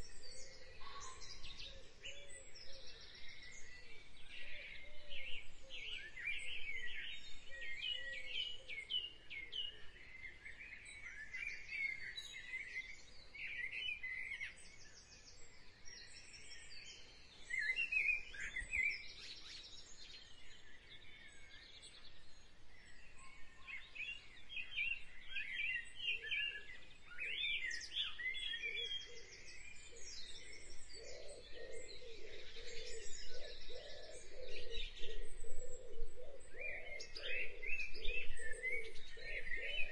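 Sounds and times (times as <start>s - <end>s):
birds chirping: 16.0s - 39.9s.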